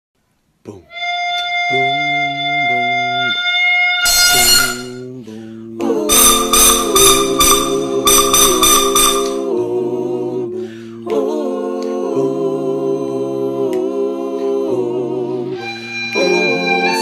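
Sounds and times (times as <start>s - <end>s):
person humming a tune: 0.7s - 3.4s, 4.1s - 9.6s, 15.4s - 17.0s.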